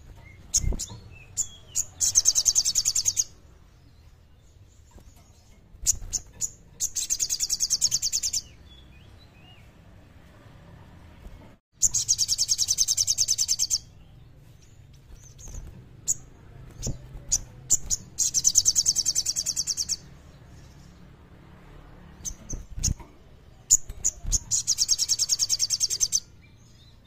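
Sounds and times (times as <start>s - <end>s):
songbird high-pitched trills: 0.2s - 3.4s, 5.8s - 9.7s, 11.8s - 14.2s, 15.2s - 20.2s, 23.7s - 27.0s
short sharp bird chips: 22.2s - 26.9s.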